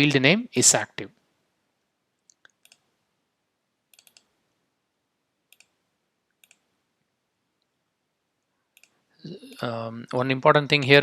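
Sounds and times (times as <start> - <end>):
computer keyboard or mouse clicks: 2.3 - 2.9, 3.9 - 4.4, 5.5 - 5.8, 6.4 - 6.7, 8.8 - 9.0.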